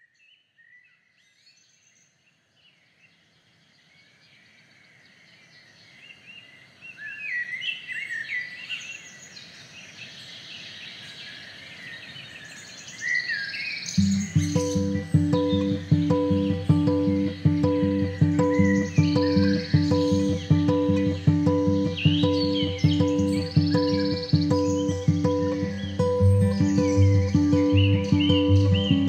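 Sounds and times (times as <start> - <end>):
acoustic guitar plucked notes: 14.0 - 29.0
birds chirping and calling: 14.0 - 29.0.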